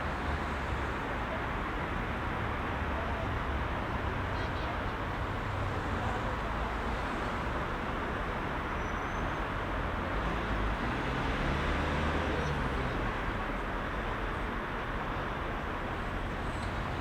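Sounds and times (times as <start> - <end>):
heavy city traffic: 0.0 - 17.0.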